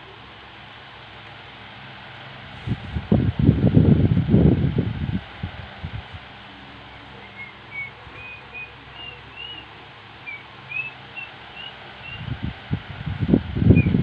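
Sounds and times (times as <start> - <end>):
electric fan humming: 0.0 - 14.0
short high bird chirps: 7.2 - 12.2.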